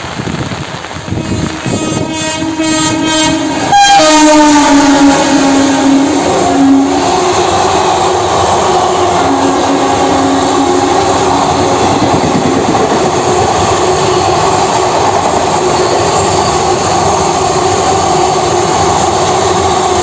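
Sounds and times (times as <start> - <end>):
train passing: 0.0 - 20.0
locomotive horn: 1.0 - 12.7.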